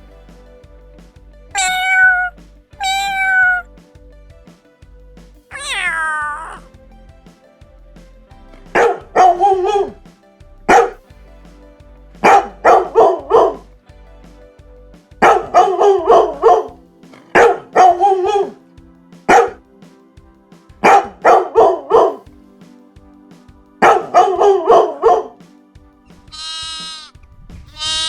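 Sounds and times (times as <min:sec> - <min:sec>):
faint background music: 0:00.0 - 0:28.0
dog barking: 0:10.7 - 0:10.9, 0:19.3 - 0:19.6.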